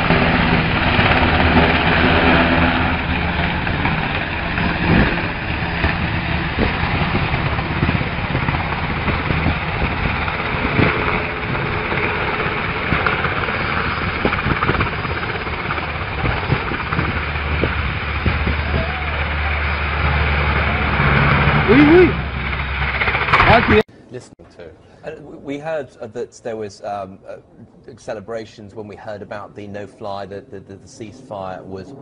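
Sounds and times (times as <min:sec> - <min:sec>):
helicopter rushing din: 0:00.0 - 0:23.9.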